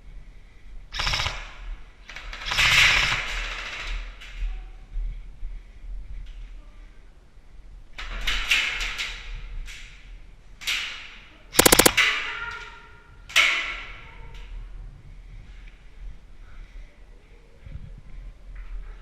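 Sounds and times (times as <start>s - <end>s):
airsoft guns firing: 11.6s - 12.0s.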